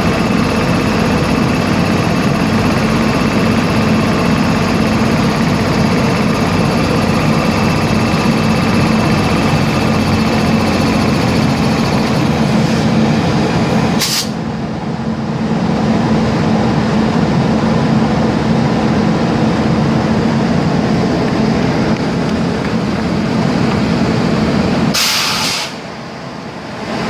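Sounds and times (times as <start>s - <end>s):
vehicle running noise: 0.0s - 27.0s
high hiss: 24.9s - 25.9s.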